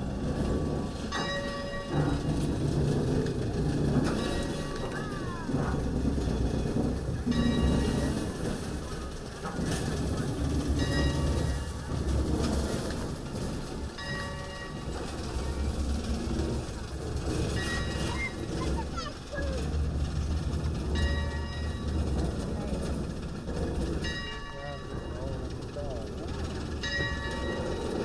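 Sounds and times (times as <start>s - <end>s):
train running on track: 0.0s - 28.0s.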